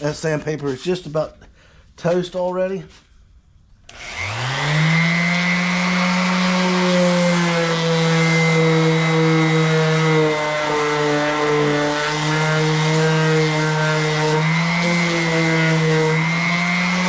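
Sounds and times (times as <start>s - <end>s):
power sander running: 3.9s - 17.0s.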